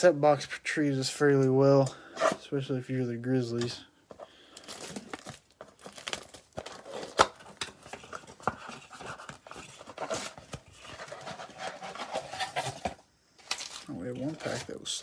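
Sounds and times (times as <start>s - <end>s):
cardboard and wrapping tearing: 4.6s - 15.0s.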